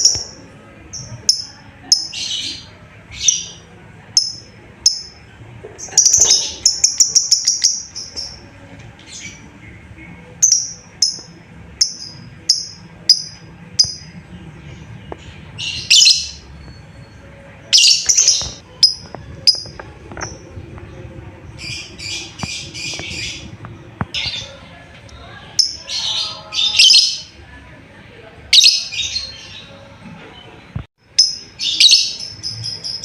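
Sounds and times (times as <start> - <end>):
bird chirping and chattering: 5.8 - 8.4, 15.6 - 16.9, 17.7 - 20.9, 21.5 - 24.6.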